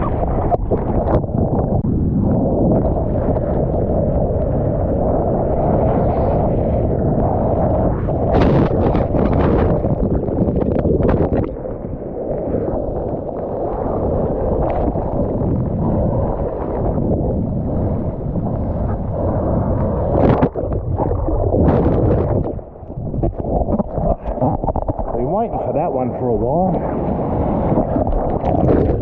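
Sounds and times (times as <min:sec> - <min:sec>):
wind buffeting microphone: 0:00.0 - 0:29.0
water splashing and sloshing: 0:18.6 - 0:26.0, 0:26.8 - 0:29.0.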